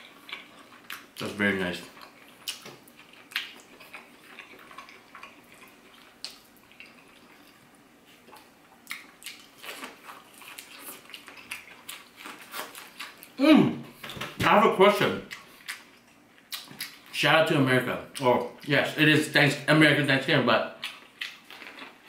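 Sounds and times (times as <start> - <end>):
person chewing: 0.0 - 14.2, 15.2 - 17.2, 20.8 - 22.0
mouth clicks and smacks: 2.4 - 3.7, 15.3 - 17.0.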